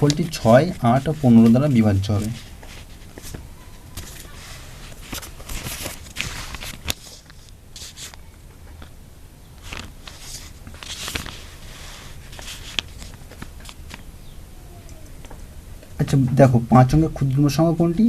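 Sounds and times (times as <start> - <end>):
pen scratching on paper: 0.0 - 2.9
paper rustling: 0.0 - 9.0, 9.6 - 14.0.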